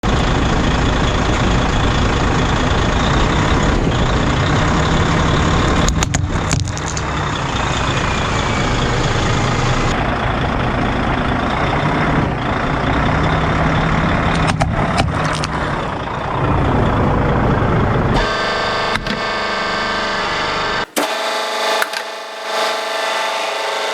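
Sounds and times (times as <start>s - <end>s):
truck engine running: 0.0s - 23.9s
wooden dolls cracking under wheels: 5.8s - 7.3s, 20.9s - 23.3s
steady hum: 18.2s - 23.9s.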